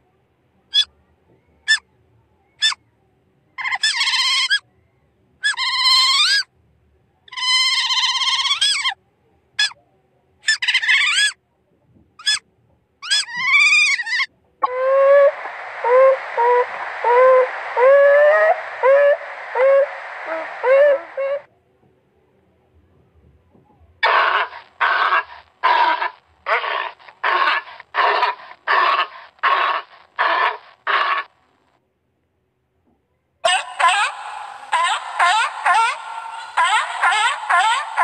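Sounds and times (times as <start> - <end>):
otter squealing: 13.0 - 21.5, 24.0 - 31.3, 33.5 - 38.0
steady hiss: 14.6 - 21.5, 24.0 - 31.3, 33.6 - 38.0
otter chirps: 24.0 - 31.3, 33.5 - 38.0.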